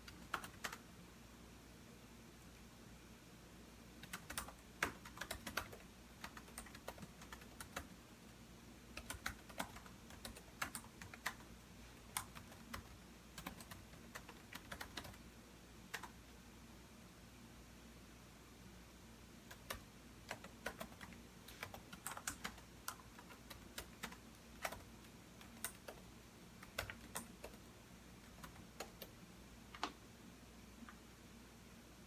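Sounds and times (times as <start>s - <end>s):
typing on computer keyboard: 0.0s - 0.8s, 4.0s - 7.9s, 8.9s - 11.5s, 12.1s - 15.2s, 15.9s - 16.2s, 19.5s - 30.0s.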